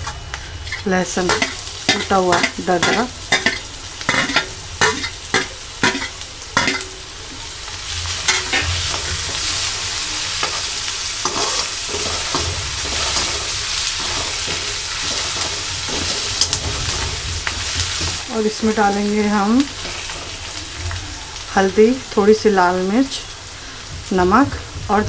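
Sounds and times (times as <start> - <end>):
steel spatula tapping: 0.0 - 6.9
onions sizzling in hot oil: 0.0 - 25.0
spatula scraping a steel pan: 10.4 - 18.2.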